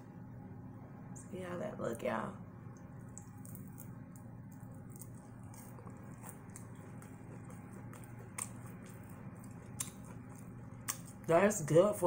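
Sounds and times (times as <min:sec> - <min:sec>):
low hum: 0:00.0 - 0:11.9
person chewing crunchy food: 0:03.0 - 0:11.5.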